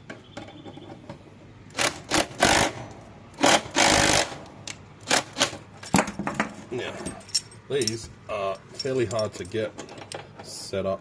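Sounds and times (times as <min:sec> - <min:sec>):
impact driver hammering: 0:03.4 - 0:06.1.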